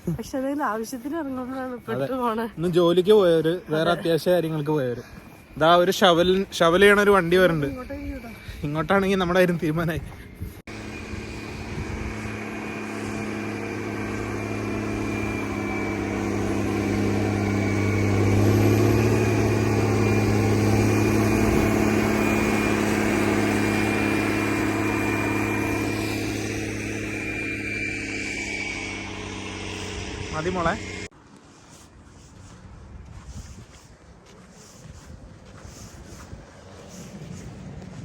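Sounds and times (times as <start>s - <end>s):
diesel truck engine passing: 10.7s - 31.1s.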